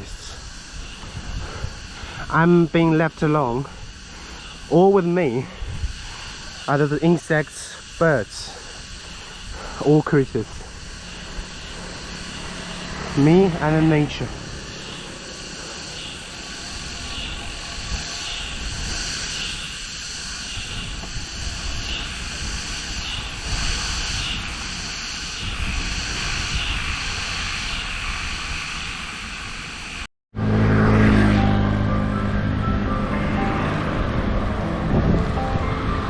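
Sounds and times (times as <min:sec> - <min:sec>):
insects buzzing: 0:00.0 - 0:30.0, 0:32.6 - 0:34.3
background music: 0:31.2 - 0:36.0.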